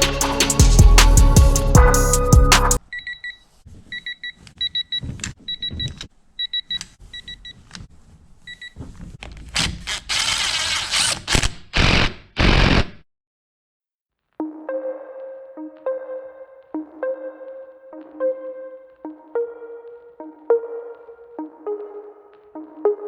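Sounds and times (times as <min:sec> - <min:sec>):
music: 0:00.0 - 0:02.8, 0:14.4 - 0:23.0.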